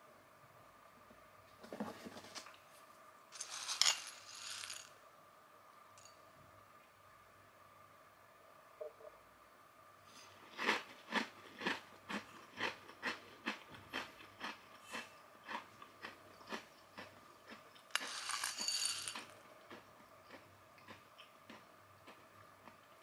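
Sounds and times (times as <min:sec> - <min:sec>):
spoon rattling in ceramic bowl: 0:03.4 - 0:04.9, 0:17.9 - 0:19.4
chewing crunchy snack: 0:10.1 - 0:23.0.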